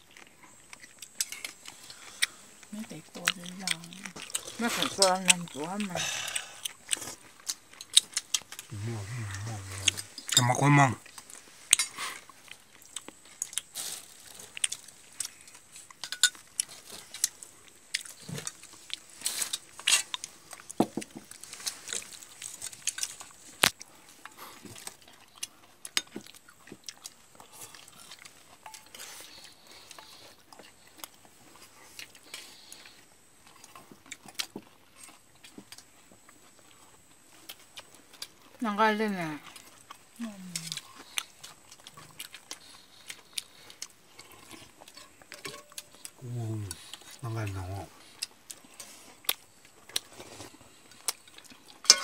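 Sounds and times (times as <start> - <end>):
crunching and clicking: 0.0 - 38.6.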